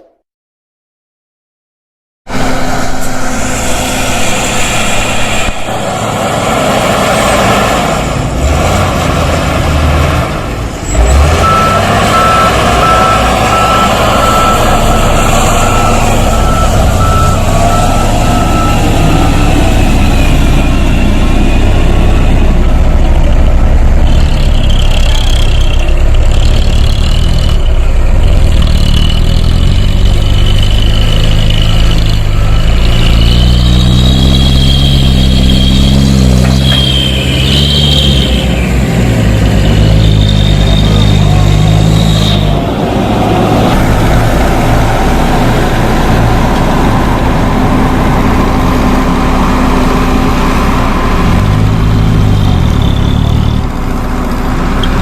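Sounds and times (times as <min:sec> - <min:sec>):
high wavering hydraulic whine: 0:02.3 - 0:07.0, 0:12.8 - 0:29.1
diesel truck engine running: 0:02.3 - 0:55.0.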